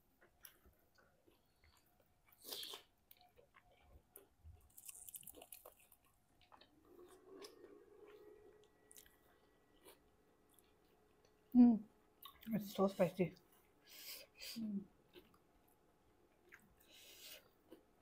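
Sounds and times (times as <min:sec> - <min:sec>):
faint close-up chewing: 0:00.0 - 0:11.6, 0:12.2 - 0:12.6, 0:13.4 - 0:18.0.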